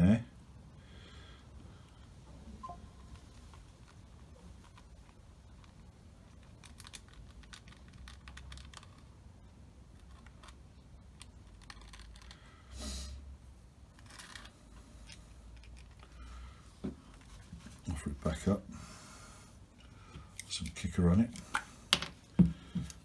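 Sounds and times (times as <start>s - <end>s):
short hiss: 12.7s - 13.3s.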